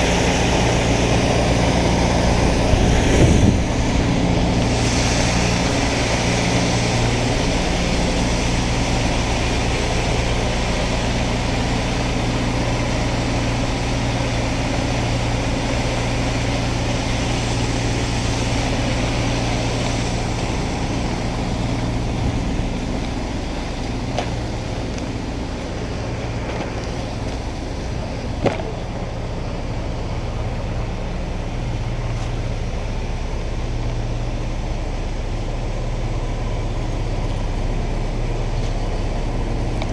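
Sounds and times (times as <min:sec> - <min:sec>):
engine humming: 0:00.0 - 0:39.9.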